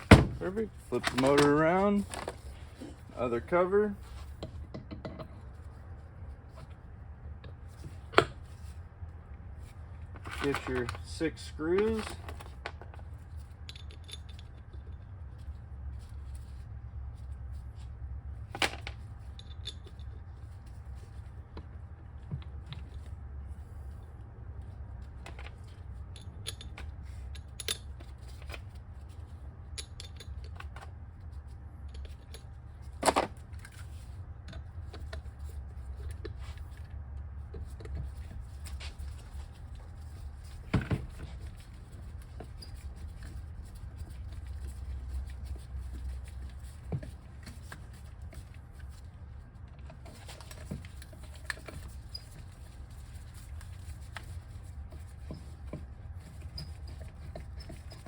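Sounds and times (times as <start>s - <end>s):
steady low hum: 0.0s - 58.0s
metal parts clicking and tapping: 13.6s - 14.9s, 25.2s - 28.8s, 29.7s - 30.9s.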